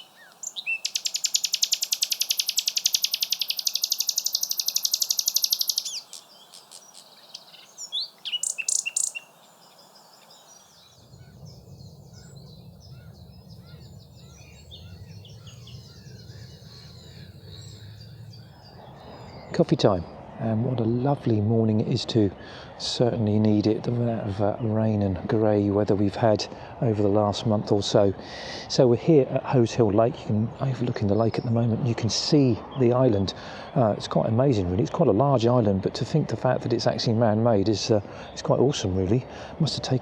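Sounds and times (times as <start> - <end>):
nightingale singing trills: 0.0 - 21.4
faint scattered birdsong: 0.0 - 40.0.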